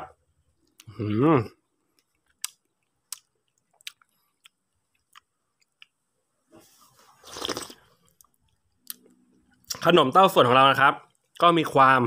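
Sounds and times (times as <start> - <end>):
wet mouth clicks and lip smacks: 2.0 - 6.0.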